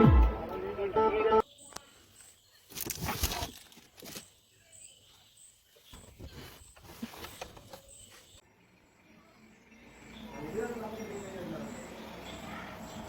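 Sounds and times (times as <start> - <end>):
faint rustling: 5.6 - 8.4.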